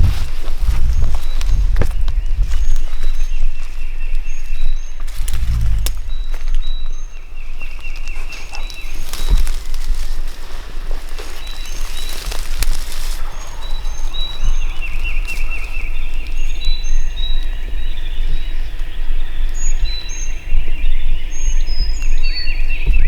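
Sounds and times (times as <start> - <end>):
rustling hiss: 0.0 - 17.6
steady low rumble: 0.0 - 19.4
songbirds chirping: 0.0 - 23.0
warbling birdsong: 0.0 - 23.0.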